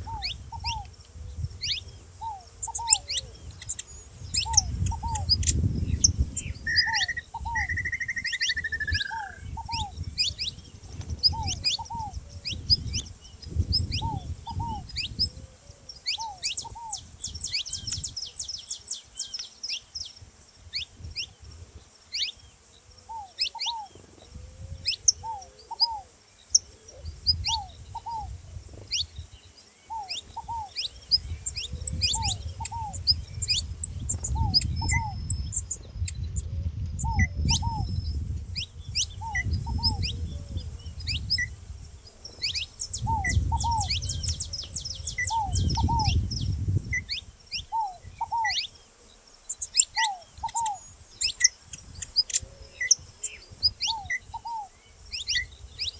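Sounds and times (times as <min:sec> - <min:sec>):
dove cooing: 0:00.0 - 0:03.5, 0:04.4 - 0:13.0, 0:13.6 - 0:17.1, 0:23.0 - 0:28.4, 0:29.9 - 0:38.3, 0:39.1 - 0:41.5, 0:42.1 - 0:46.3, 0:47.6 - 0:48.7, 0:49.8 - 0:50.8
finch chirping: 0:01.6 - 0:15.3, 0:29.9 - 0:41.5, 0:42.3 - 0:48.8, 0:49.5 - 0:55.9.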